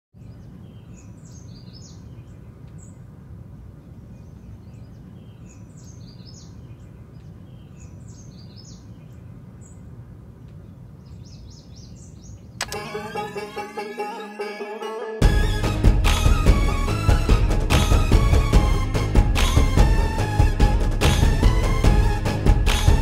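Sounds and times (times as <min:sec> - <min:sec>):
songbirds chirping: 0:00.1 - 0:13.2.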